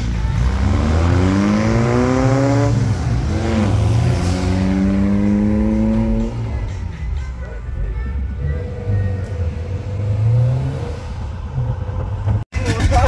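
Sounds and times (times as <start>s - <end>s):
car accelerating hard: 0.3s - 6.6s.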